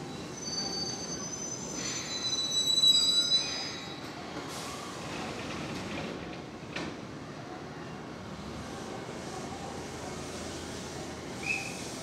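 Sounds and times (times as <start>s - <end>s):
train brakes squealing: 0.0s - 5.0s, 11.4s - 12.0s.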